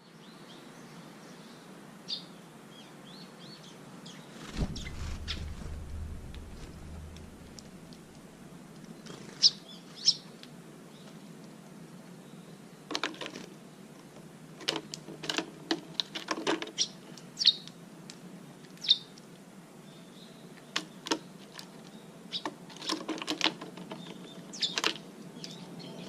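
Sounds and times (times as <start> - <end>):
bird chirping: 3.1 - 8.2.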